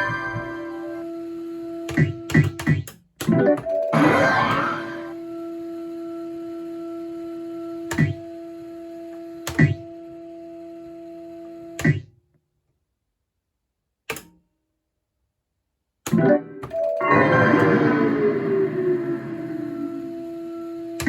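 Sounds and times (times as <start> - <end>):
steady electronic tone: 0.0 - 1.4, 16.4 - 21.0
click: 14.1 - 14.4.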